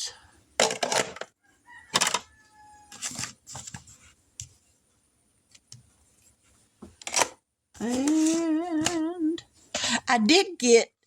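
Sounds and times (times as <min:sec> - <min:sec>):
pens clattering: 0:07.0 - 0:09.0.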